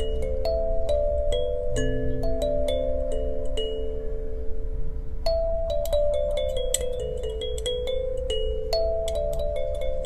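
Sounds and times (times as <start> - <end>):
bell-like melody over held tones: 0.0 - 10.0.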